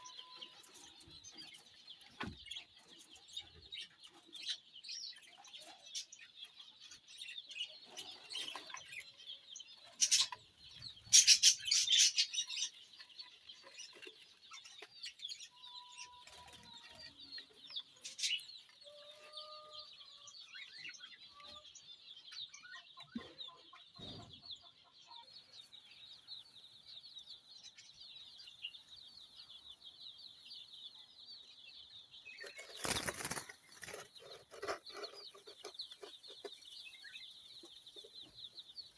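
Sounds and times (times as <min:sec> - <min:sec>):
lovebirds chattering: 0:00.0 - 0:38.9
wings flapping: 0:32.6 - 0:34.0.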